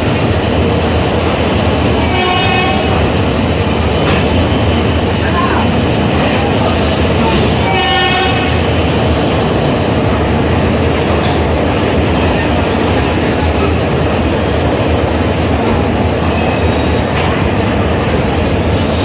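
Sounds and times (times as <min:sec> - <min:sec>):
train wheels rumbling on rail: 0:00.0 - 0:19.0
short train horn: 0:02.0 - 0:03.0, 0:07.2 - 0:08.6.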